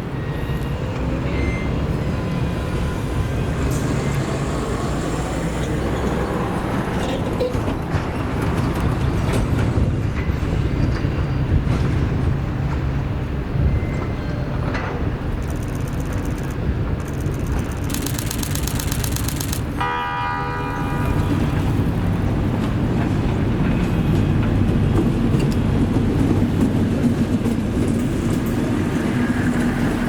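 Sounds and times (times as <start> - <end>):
diesel locomotive engine drone: 0.0 - 30.0
rapid high-pitched ringing: 17.9 - 19.6.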